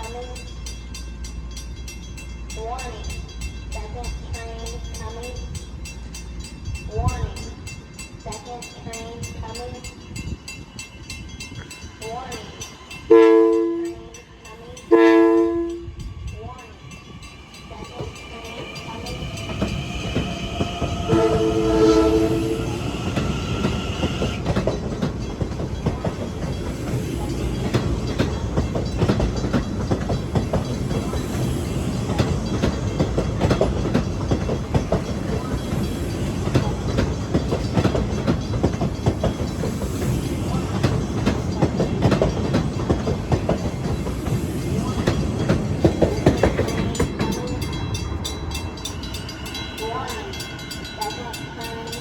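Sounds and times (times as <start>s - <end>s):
train rail noise: 0.0s - 52.0s
train horn blast: 13.1s - 14.1s, 14.9s - 16.1s, 21.0s - 23.3s
wheels clicking over rail joints: 17.9s - 52.0s.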